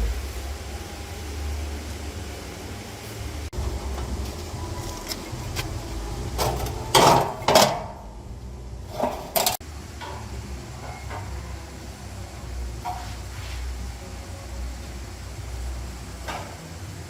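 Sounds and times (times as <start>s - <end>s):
steady low rumble: 0.0s - 10.8s
metallic clanks and knocks: 6.3s - 8.1s, 8.9s - 11.3s.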